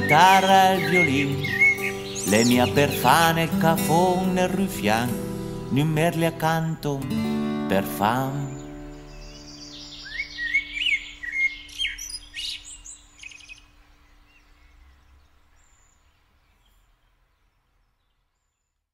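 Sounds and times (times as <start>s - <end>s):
songbird chirping and whistling: 0.0s - 4.3s, 8.3s - 16.9s
music: 0.0s - 11.3s.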